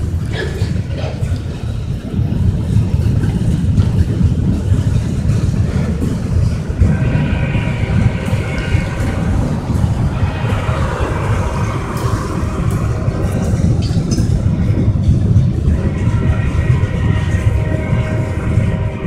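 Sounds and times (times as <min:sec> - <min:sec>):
freight cars rumbling on rails: 0:00.0 - 0:19.0
road vehicle passing: 0:05.1 - 0:19.0
thin high whine: 0:06.0 - 0:19.0.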